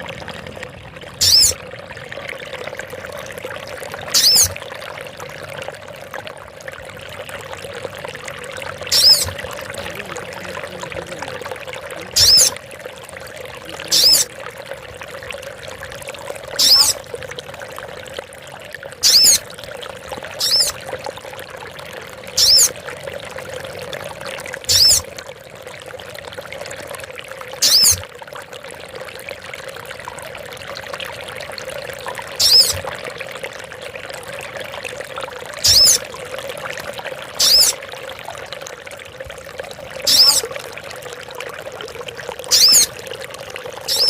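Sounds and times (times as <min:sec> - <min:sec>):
running water trickling: 0:00.0 - 0:44.0
bird calling high-pitched: 0:01.2 - 0:01.6, 0:04.1 - 0:04.6, 0:08.9 - 0:09.9, 0:12.1 - 0:12.6, 0:13.7 - 0:14.3, 0:16.6 - 0:17.0, 0:19.0 - 0:19.4, 0:20.4 - 0:20.8, 0:22.4 - 0:22.7, 0:24.7 - 0:25.0, 0:27.6 - 0:28.0, 0:32.4 - 0:32.8, 0:35.6 - 0:36.0, 0:37.4 - 0:37.8, 0:40.1 - 0:40.5, 0:42.5 - 0:42.9.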